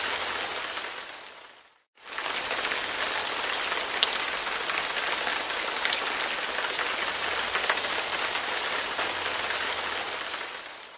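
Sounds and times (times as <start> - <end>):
steady rain falling: 0.0 - 10.9
raindrop ticks: 2.2 - 8.5.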